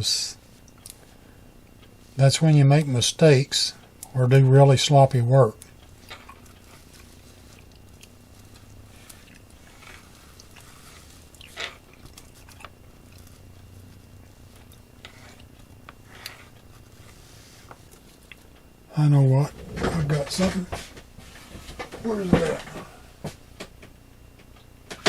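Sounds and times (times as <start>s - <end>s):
small clicks and crinkles: 5.5s - 18.7s.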